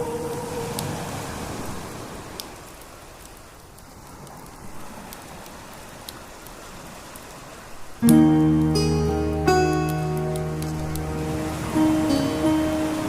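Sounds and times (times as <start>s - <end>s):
wood fire crackling: 1.4s - 13.0s
loud music chord: 8.0s - 13.0s.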